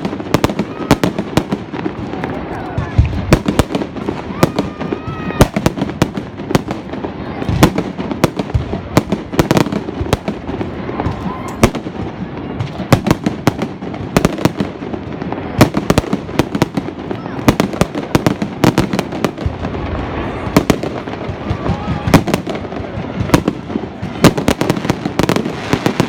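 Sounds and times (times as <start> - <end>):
fireworks bangs and cracks: 0.0 - 26.0.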